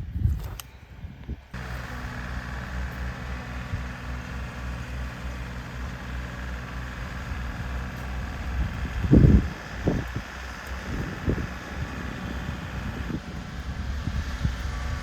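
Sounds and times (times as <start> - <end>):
engine idling: 1.5 - 15.0.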